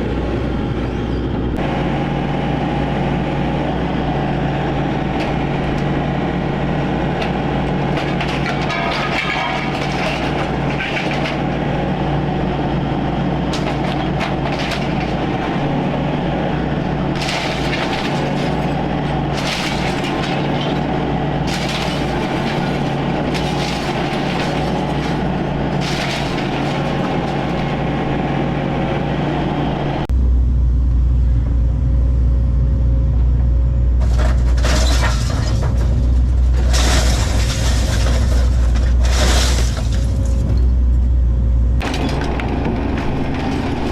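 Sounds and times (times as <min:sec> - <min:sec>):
diesel excavator engine: 0:00.0 - 0:43.9
material crashing and shattering: 0:07.8 - 0:11.5, 0:17.1 - 0:28.0, 0:34.0 - 0:40.5.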